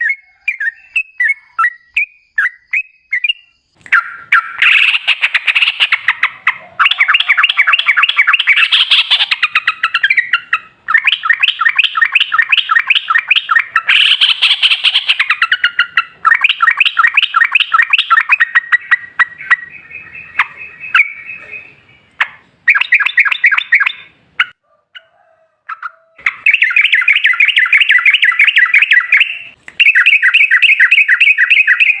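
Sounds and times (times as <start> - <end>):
bird singing chattering notes: 0.0 - 24.6, 26.3 - 32.0.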